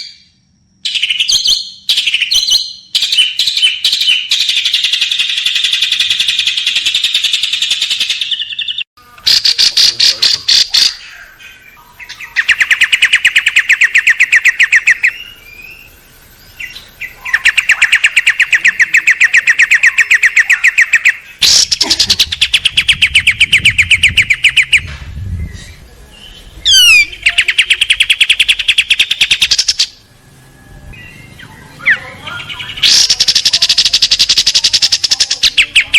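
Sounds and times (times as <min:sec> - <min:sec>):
songbird rattling trills: 0:09.3 - 0:30.0, 0:31.0 - 0:35.9
down-slurred bird whistle: 0:12.0 - 0:24.9, 0:26.6 - 0:30.0.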